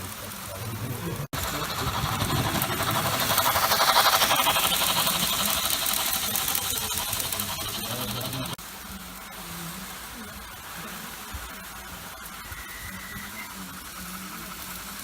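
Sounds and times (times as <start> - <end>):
model train clattering past: 0.0 - 8.6.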